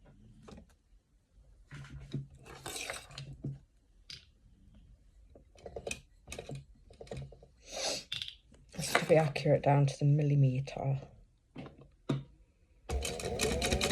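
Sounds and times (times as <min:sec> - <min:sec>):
sewing clicks: 0:12.9 - 0:13.9.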